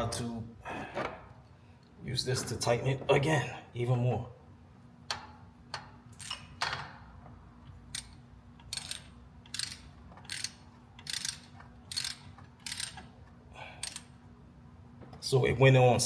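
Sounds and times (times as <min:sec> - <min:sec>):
ratchet wrench clicking: 0:07.9 - 0:13.1, 0:13.8 - 0:14.1.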